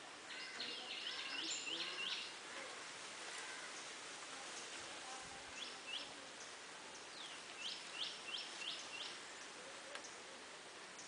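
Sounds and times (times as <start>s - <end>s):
outdoor hiss: 0.0s - 11.0s
bird chirping: 0.3s - 2.4s, 5.5s - 10.2s.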